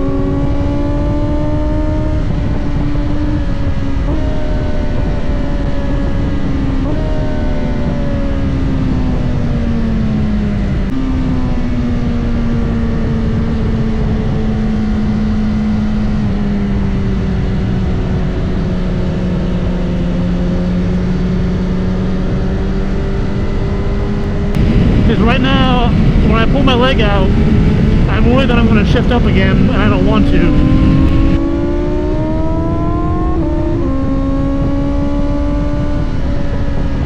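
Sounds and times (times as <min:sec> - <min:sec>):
motorcycle engine: 0:00.0 - 0:37.0
wind rush: 0:24.3 - 0:31.4.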